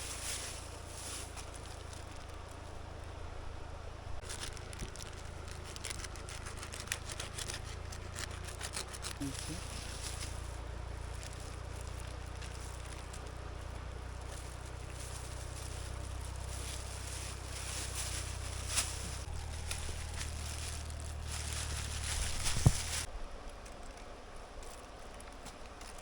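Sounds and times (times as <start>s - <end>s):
fire crackling and snapping: 0.0s - 3.2s, 4.2s - 26.0s
steady low rumble: 0.0s - 26.0s.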